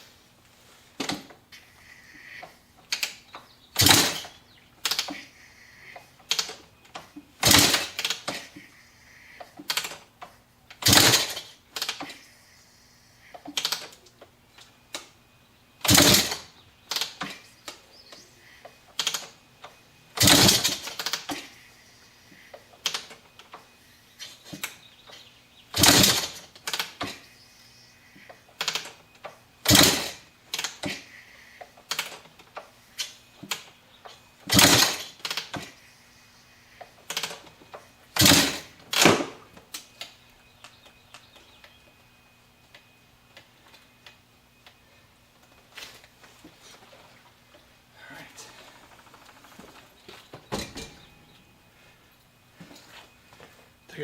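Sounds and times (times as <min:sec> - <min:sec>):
engine turning over from kicks: 0:02.9 - 0:05.2, 0:06.2 - 0:08.7, 0:10.8 - 0:12.2, 0:15.8 - 0:17.5, 0:18.9 - 0:21.6, 0:24.2 - 0:27.3, 0:28.6 - 0:31.2, 0:31.8 - 0:35.8, 0:37.1 - 0:39.9.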